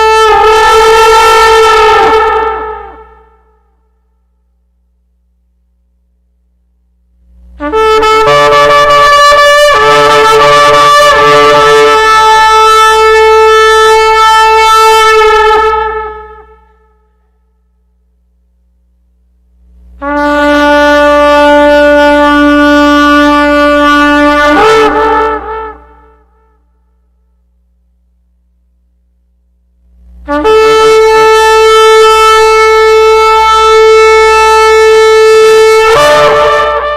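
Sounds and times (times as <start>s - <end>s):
shofar blasts: 0.0s - 4.0s, 7.6s - 17.4s, 20.0s - 27.3s, 30.3s - 36.9s.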